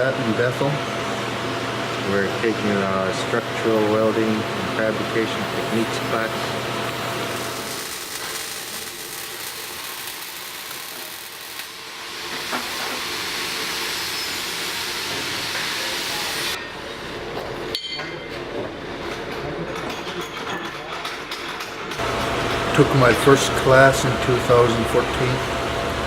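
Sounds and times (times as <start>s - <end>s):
welding hiss: 2.5s - 16.6s, 22.0s - 26.0s
welding crackling: 5.2s - 16.6s, 22.0s - 26.0s.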